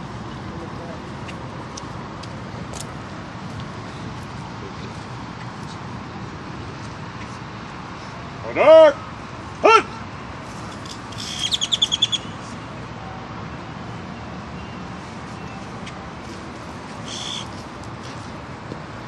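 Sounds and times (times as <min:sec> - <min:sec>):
steady background noise: 0:00.0 - 0:19.0
bird chirping: 0:11.1 - 0:12.4, 0:17.0 - 0:17.6.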